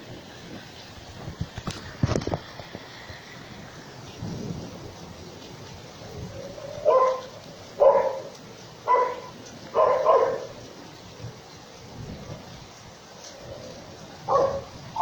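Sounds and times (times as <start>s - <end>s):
rain hissing: 0.0s - 15.0s
dog barking: 6.8s - 10.6s, 14.2s - 15.0s.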